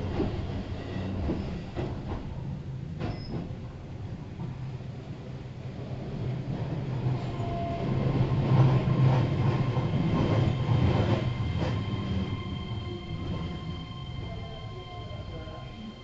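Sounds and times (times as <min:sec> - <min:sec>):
train running rumble: 0:00.0 - 0:16.0.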